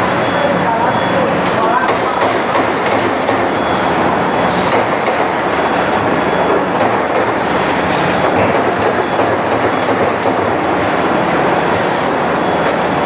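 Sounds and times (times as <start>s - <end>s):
sharp machine clicks: 1.4s - 3.8s, 6.7s - 10.7s
punching machine clattering: 1.5s - 12.2s.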